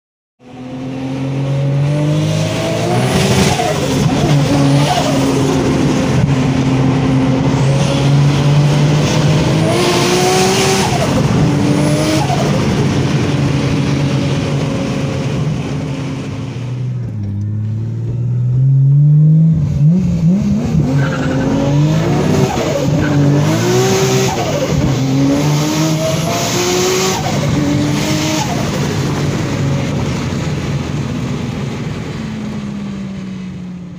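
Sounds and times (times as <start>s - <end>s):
car engine accelerating through gears: 0.5s - 32.1s.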